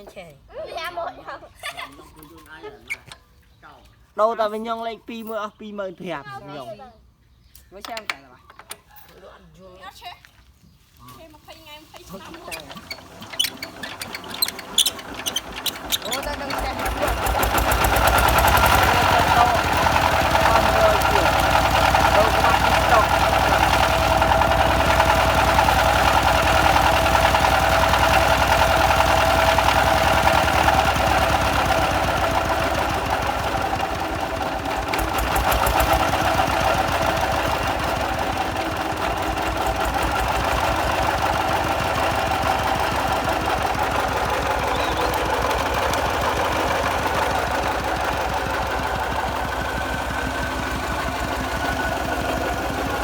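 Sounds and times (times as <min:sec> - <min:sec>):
tractor engine knocking clatter: 0:12.0 - 0:53.0.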